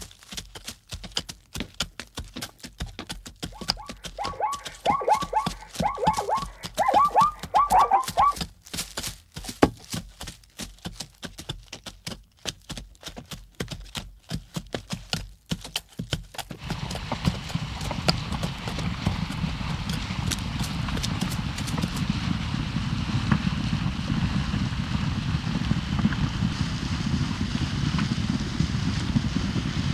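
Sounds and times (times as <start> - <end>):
hooves clip-clopping: 0.0 - 22.4.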